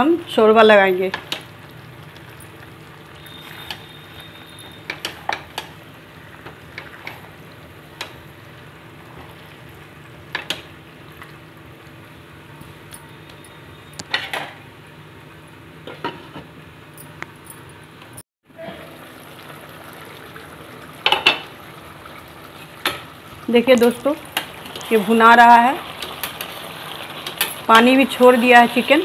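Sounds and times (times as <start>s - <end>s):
chicken sizzling in oil: 18.8s - 29.0s.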